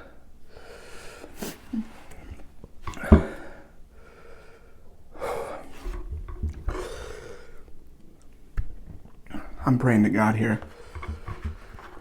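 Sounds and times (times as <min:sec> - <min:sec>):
man breathing hard: 0:00.0 - 0:06.0, 0:06.6 - 0:07.8.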